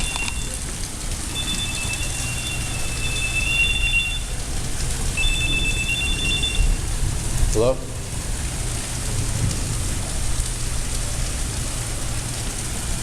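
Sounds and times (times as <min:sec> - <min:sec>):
heavy rain pouring: 0:00.0 - 0:13.0
high electronic tone: 0:01.3 - 0:04.4, 0:05.2 - 0:06.8.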